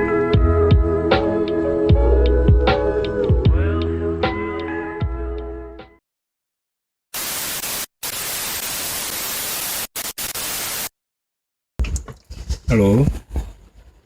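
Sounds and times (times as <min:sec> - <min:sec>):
background music: 0:00.0 - 0:06.0
tv static white noise: 0:07.2 - 0:10.9.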